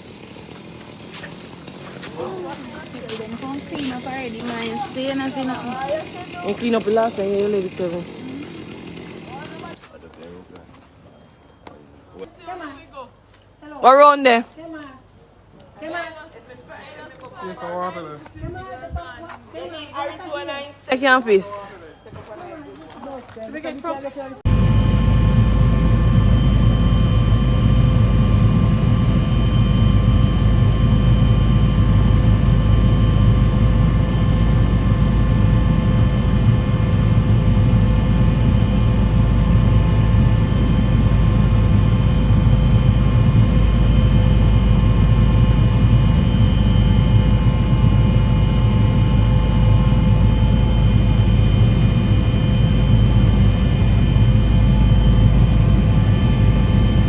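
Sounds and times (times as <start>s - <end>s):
engine drone: 0.0s - 9.8s, 24.5s - 57.0s.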